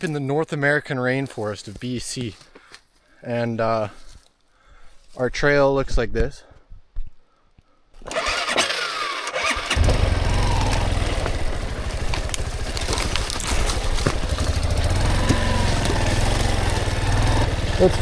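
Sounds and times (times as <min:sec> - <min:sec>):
dirt bike engine starting: 0:08.0 - 0:18.0.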